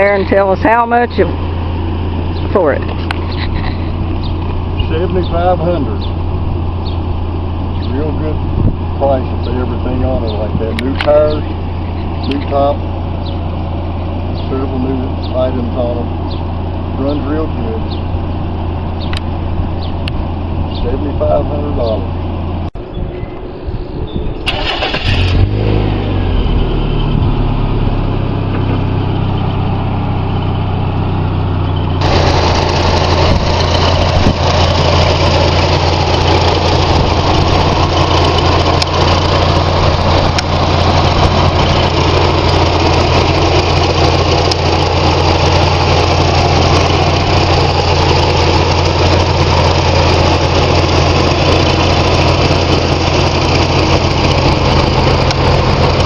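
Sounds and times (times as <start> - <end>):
car engine starting and idling: 0.0 - 22.8, 24.4 - 56.0.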